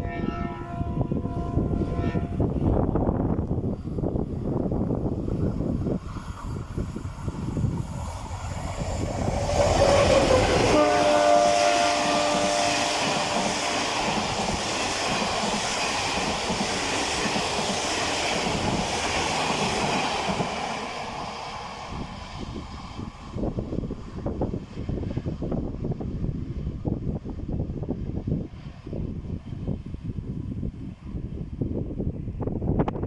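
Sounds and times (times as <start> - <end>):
locomotive horn: 0.0 - 2.9, 9.6 - 14.1
train passing on rails: 0.0 - 33.0.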